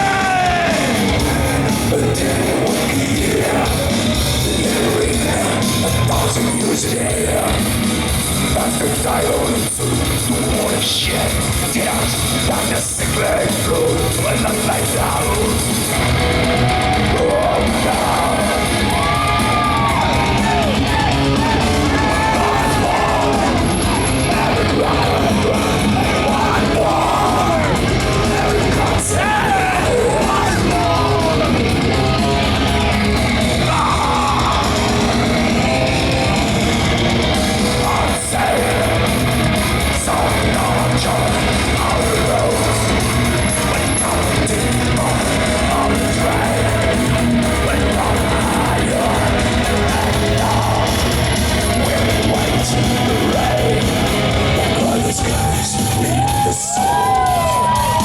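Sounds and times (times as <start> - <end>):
distorted electric guitars: 0.0 - 58.0
drums: 0.0 - 58.0
shouted vocals: 0.0 - 58.0.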